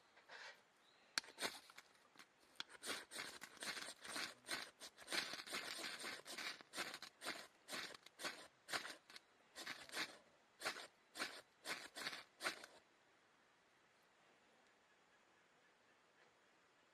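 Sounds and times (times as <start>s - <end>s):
crinkling and tearing: 1.2s - 12.8s.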